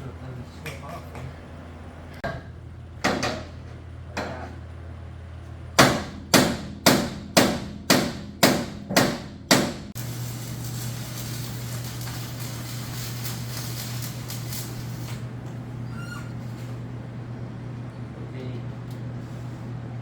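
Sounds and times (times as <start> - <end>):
steady low hum: 0.0 - 20.0
hammer striking sheet steel: 5.8 - 12.4.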